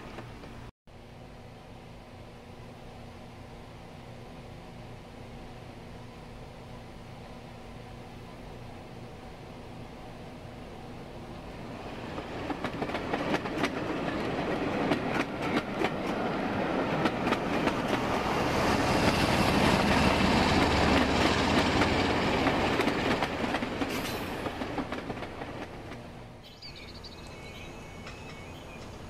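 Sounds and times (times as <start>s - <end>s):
model train rumble: 11.8s - 26.1s.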